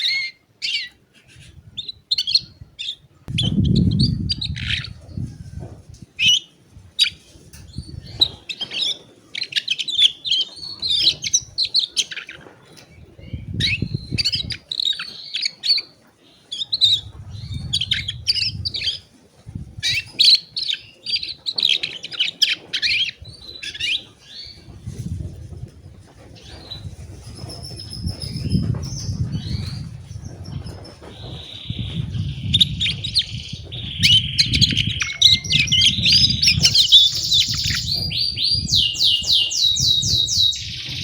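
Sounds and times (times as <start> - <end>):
low muffled bumps: 3.3 - 6.1, 24.7 - 41.0
canary singing: 7.8 - 19.1, 19.8 - 24.7, 26.4 - 41.0.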